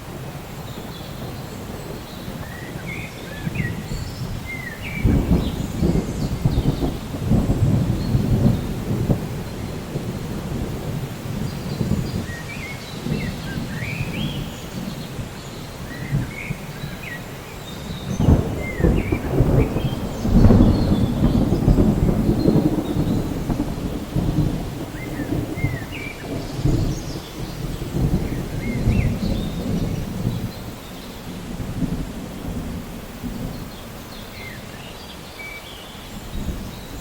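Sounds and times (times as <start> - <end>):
rolling thunder: 0.0 - 34.8
rain: 0.0 - 37.0
birds chirping: 0.4 - 10.3, 11.4 - 32.6.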